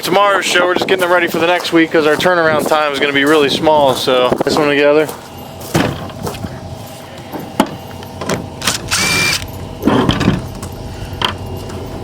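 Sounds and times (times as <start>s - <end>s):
steady background hum: 0.0s - 12.0s
parts clanking: 4.6s - 12.0s
power drill driving screws: 8.6s - 9.5s.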